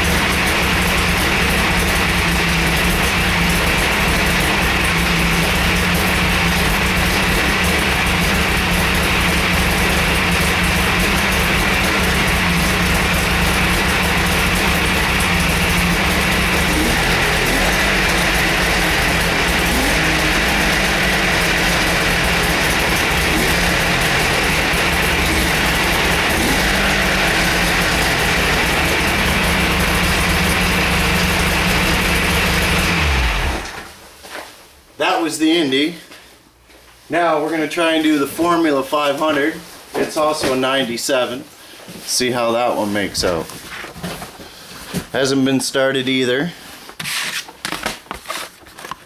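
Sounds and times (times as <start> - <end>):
snowmobile engine idling: 0.0 - 34.0.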